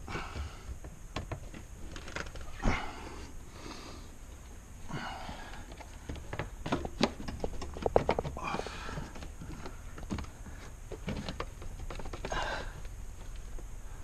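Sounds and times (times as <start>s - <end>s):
person breathing: 2.6s - 4.2s, 4.8s - 6.3s, 8.4s - 10.8s, 12.2s - 12.9s.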